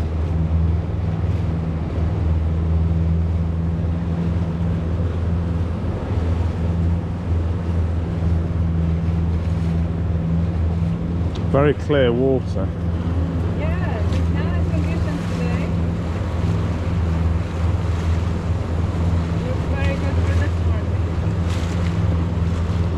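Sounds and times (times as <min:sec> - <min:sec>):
boat motor humming: 0:00.0 - 0:22.9
water noise: 0:00.0 - 0:22.9.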